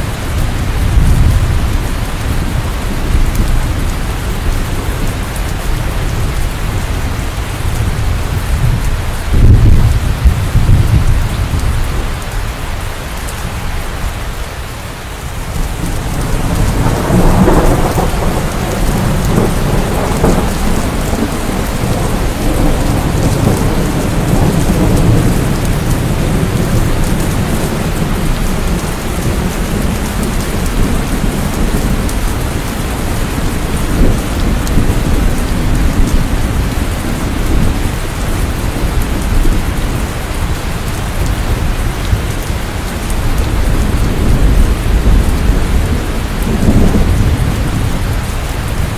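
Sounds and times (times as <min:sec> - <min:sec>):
thunder rumbling: 0:00.0 - 0:12.6, 0:15.2 - 0:48.9
heavy rain: 0:00.0 - 0:48.9.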